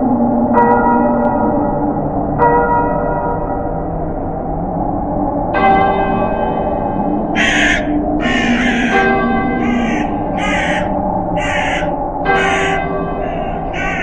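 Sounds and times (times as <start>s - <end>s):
low wind: 0.0s - 14.0s
church bell tolling: 0.5s - 3.9s, 5.6s - 14.0s
crow cawing: 7.4s - 14.0s.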